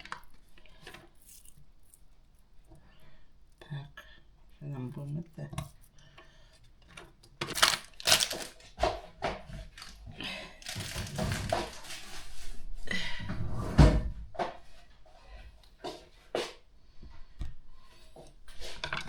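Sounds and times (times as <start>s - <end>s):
scraping and rustling: 7.4s - 15.0s.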